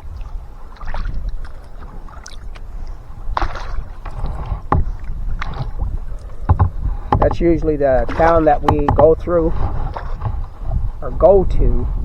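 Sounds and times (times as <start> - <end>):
paddle blades splashing: 0.0 - 11.0
sharp knocks: 4.5 - 5.8, 6.4 - 9.3.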